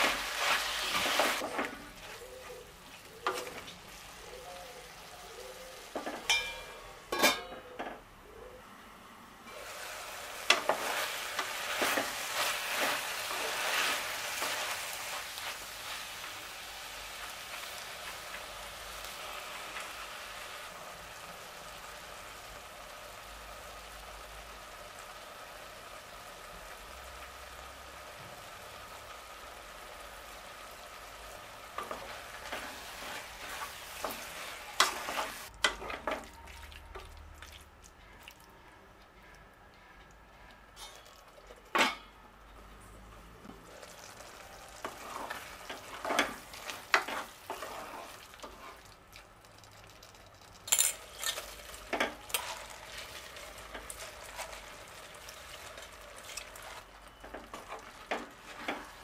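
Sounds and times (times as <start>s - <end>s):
food sizzling in hot oil: 0.0s - 2.0s, 9.5s - 36.2s, 43.5s - 59.0s
spoon scraping a pot: 44.9s - 48.9s.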